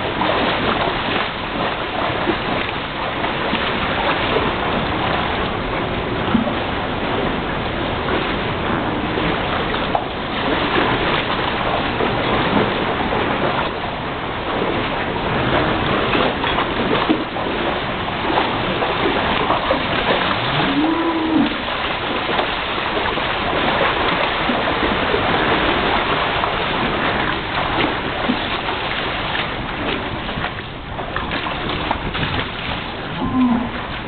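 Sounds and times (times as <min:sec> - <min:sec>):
floodwater rushing: 0:00.0 - 0:34.0
cow mooing: 0:20.4 - 0:21.6, 0:33.2 - 0:33.8.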